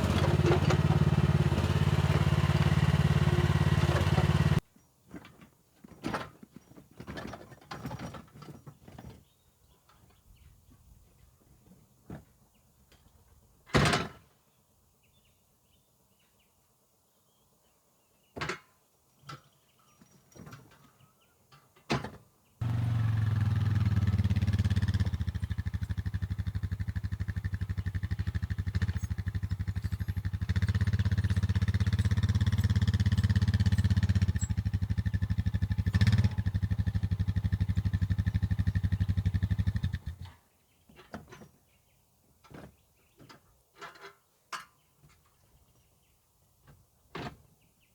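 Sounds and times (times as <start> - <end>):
excavator engine running: 0.0 - 4.6, 22.6 - 40.2.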